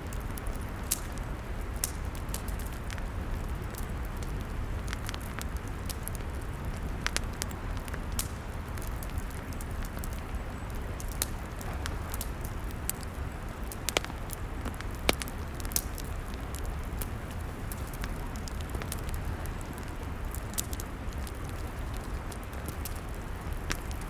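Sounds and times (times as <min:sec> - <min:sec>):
log fire crackling and popping: 0:00.0 - 0:24.0.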